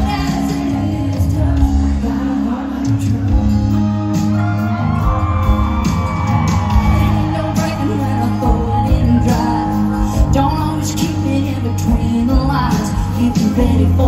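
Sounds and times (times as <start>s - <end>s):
crowd shouts and whoops: 0.0s - 9.9s
live country band music: 0.0s - 14.0s.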